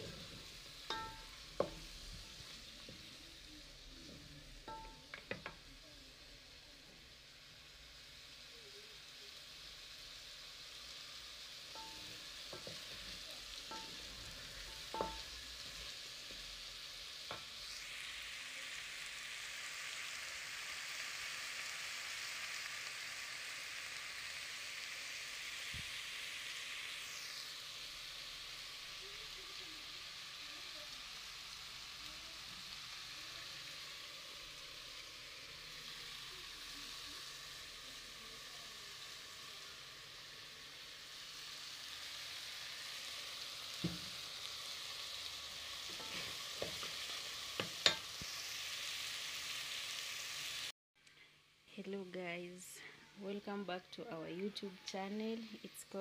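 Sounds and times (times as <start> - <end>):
meat and tomatoes sizzling: 0.0 - 56.0
wooden spoon knocking on pot: 0.9 - 1.8, 14.7 - 15.3.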